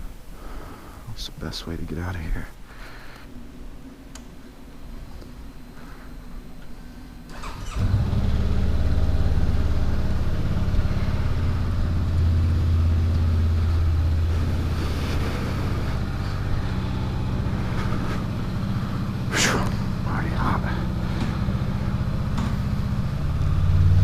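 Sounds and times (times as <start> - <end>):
motorcycle engine starting and idling: 7.1 - 24.0.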